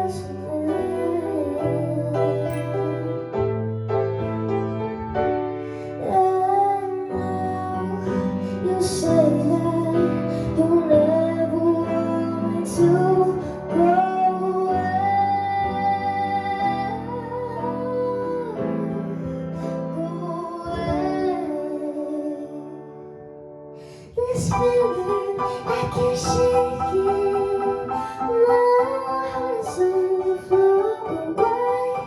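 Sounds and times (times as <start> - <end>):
woman singing slow song: 0.0 - 3.3, 6.0 - 23.1, 23.9 - 32.0
guitar accompaniment: 0.0 - 7.0.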